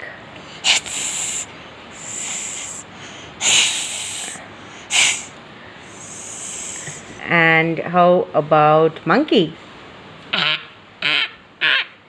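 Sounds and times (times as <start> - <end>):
child hissing through teeth: 0.5 - 7.1.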